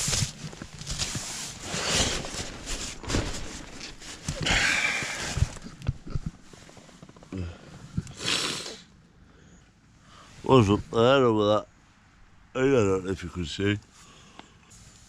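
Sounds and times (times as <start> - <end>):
rustling of camping gear: 0.0 - 8.9, 13.8 - 15.0.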